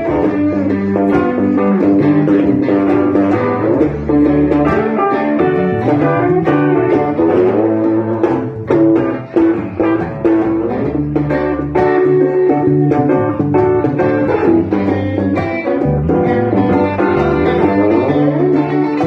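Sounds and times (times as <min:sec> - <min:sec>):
bass guitar: 0:00.0 - 0:19.0
lead guitar solo: 0:00.0 - 0:19.0
rhythm guitar: 0:00.0 - 0:19.0.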